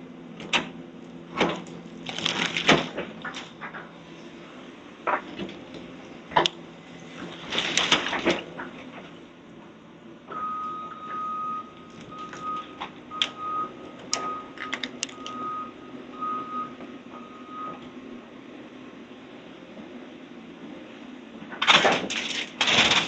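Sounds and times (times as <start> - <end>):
low engine hum: 0.0 - 22.6
backup alarm beeps: 10.3 - 17.8.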